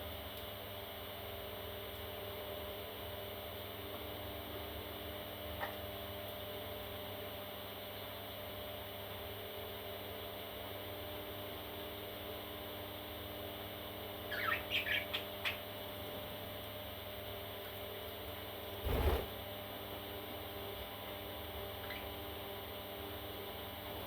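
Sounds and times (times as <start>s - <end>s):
electrical hum: 0.0s - 24.0s
parrot chick chirping: 14.3s - 15.6s.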